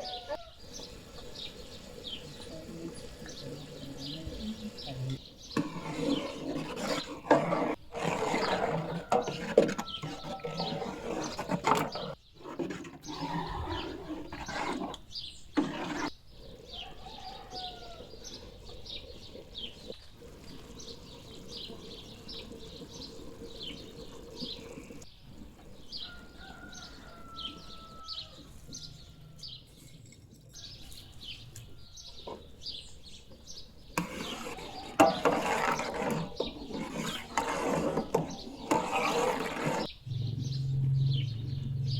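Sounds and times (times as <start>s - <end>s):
small birds chirping: 0.0s - 7.3s, 9.2s - 37.4s, 39.8s - 41.9s.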